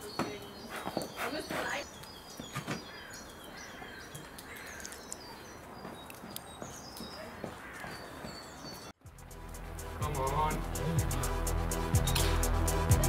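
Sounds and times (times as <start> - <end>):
small birds chirping: 0.0 - 9.0.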